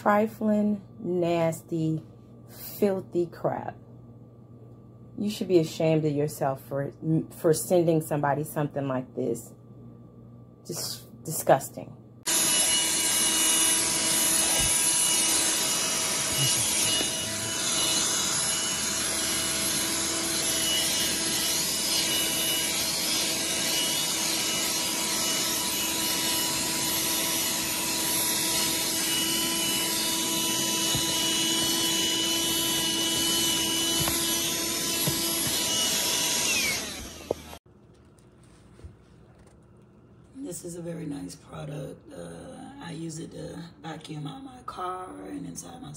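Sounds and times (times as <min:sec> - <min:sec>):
handheld vacuum running: 0:12.3 - 0:37.6.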